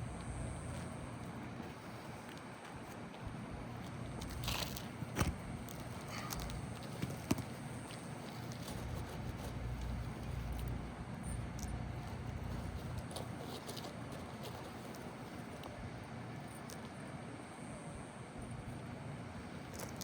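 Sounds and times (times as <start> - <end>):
sharp taps on shingles: 4.2 - 8.6.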